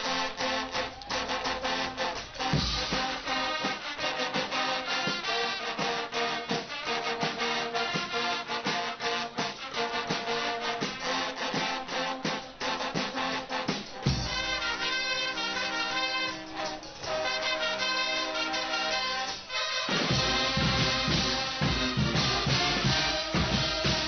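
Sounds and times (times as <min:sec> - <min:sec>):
brass playing: 0:00.0 - 0:24.0
steady drum beat: 0:00.0 - 0:24.0.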